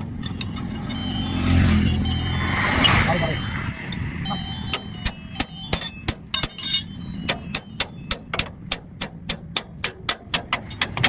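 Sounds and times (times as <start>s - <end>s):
hammer ringing on steel: 3.9s - 10.9s.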